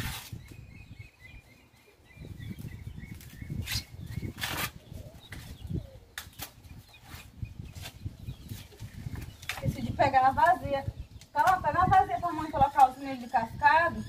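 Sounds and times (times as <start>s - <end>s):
corn husks tearing: 3.6s - 4.8s.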